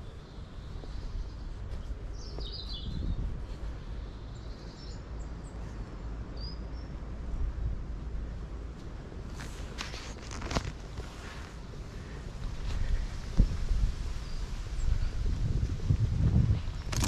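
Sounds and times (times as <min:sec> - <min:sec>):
birds chirping: 0:00.0 - 0:07.1
steady low rumble: 0:00.0 - 0:17.0.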